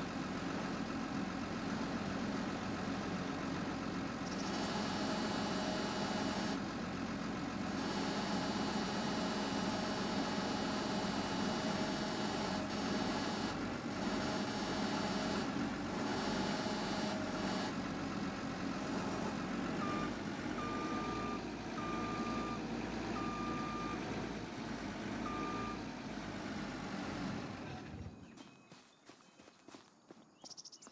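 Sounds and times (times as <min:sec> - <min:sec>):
heavy truck engine running: 0:00.0 - 0:28.4
reversing alarm beeping: 0:18.8 - 0:22.6, 0:23.2 - 0:24.0, 0:25.2 - 0:25.8.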